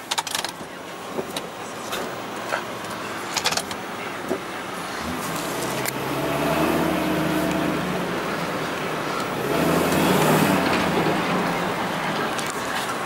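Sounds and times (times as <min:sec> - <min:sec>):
road noise: 0:00.0 - 0:13.0
truck engine accelerating: 0:04.6 - 0:13.0.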